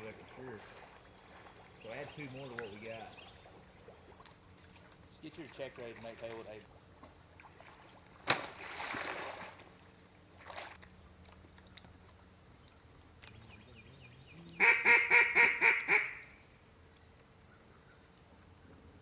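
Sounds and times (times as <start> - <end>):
mallard quacks: 14.6 - 16.2.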